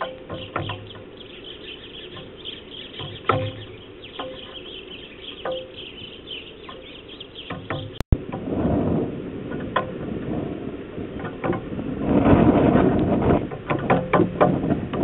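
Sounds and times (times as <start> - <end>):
short knocks: 0.0 - 1.2, 2.0 - 8.4, 13.3 - 15.0
small birds chirping: 0.0 - 8.0
low rumble: 8.1 - 13.6.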